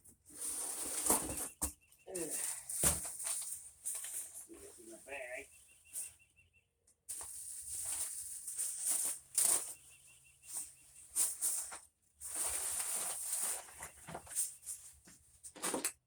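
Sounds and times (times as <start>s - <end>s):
bag rustling and crinkling: 0.4s - 4.8s, 7.1s - 14.8s.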